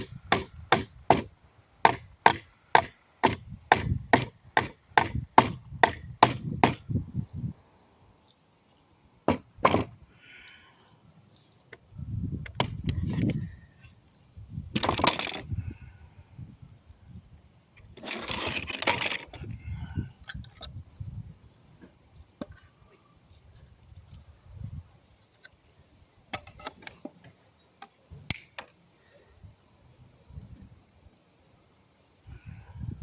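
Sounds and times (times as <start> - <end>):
wood and nails scraping: 17.9 - 19.5.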